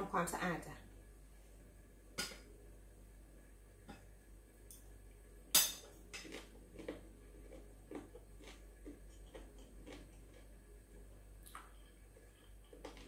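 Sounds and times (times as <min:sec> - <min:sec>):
close-up chewing: 0:06.2 - 0:13.0.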